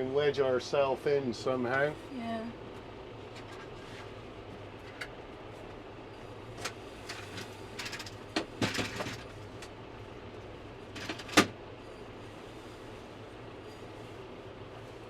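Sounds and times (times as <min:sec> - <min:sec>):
clunks and rattles: 0:06.6 - 0:09.8, 0:10.9 - 0:11.6.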